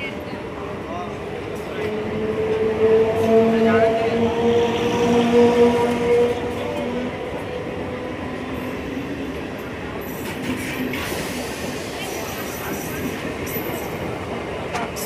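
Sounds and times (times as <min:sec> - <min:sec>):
train wheels clattering on rail: 0:08.4 - 0:15.0.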